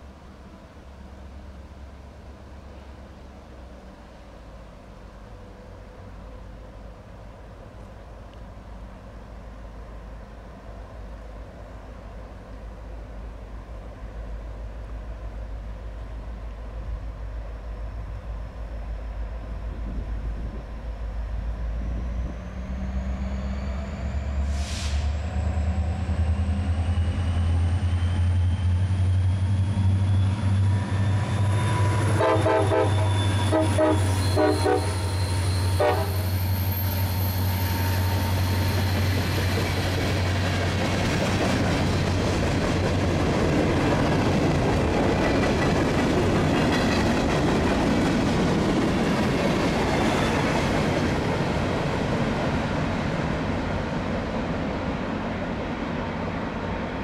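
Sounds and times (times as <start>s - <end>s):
diesel locomotive engine whining: 0.0s - 57.0s
freight cars rolling on rails: 22.0s - 56.3s
train horn blasts: 31.2s - 36.5s.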